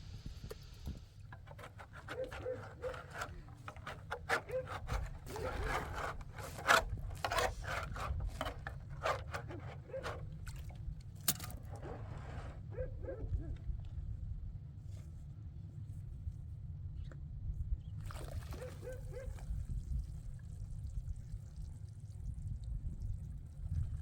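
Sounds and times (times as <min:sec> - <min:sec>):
scraping and rubbing strokes: 0:01.3 - 0:10.4, 0:11.5 - 0:12.7.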